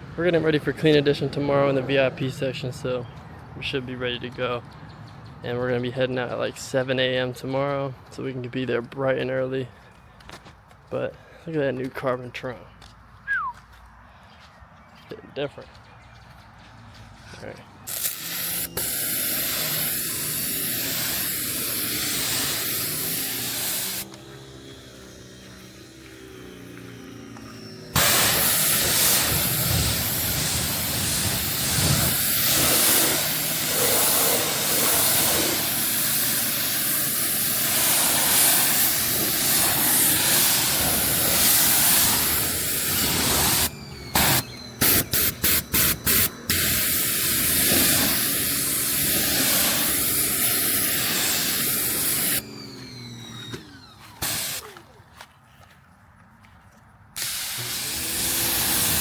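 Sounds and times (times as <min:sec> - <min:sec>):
water spraying onto a car: 0:17.9 - 0:24.1, 0:28.0 - 0:52.5, 0:54.2 - 0:54.8, 0:57.2 - 0:59.0.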